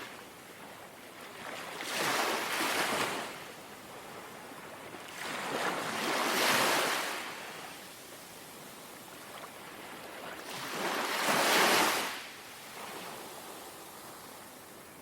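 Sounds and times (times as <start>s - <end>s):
sea waves lapping: 0.0s - 7.6s.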